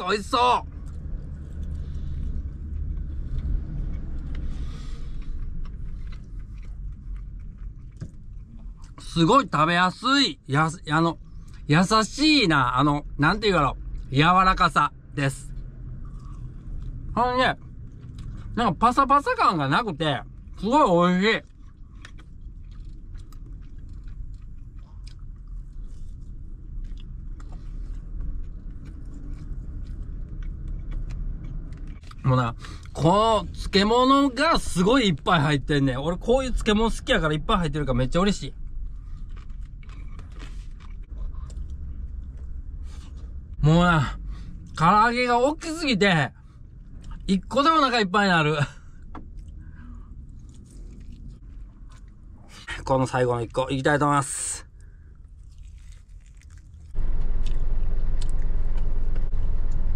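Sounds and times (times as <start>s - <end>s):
steady low rumble: 0.0s - 59.9s
man chewing fried chicken: 0.7s - 9.3s, 11.2s - 11.7s, 13.8s - 14.1s, 15.5s - 18.6s, 20.2s - 33.6s, 38.5s - 43.6s, 46.3s - 47.3s, 48.8s - 53.8s, 54.7s - 58.4s.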